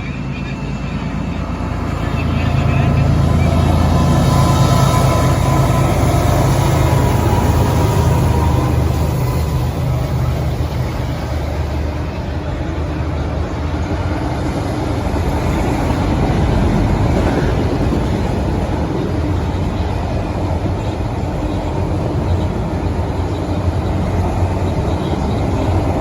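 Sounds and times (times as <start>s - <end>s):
freight train rumbling on rails: 0.0s - 26.0s.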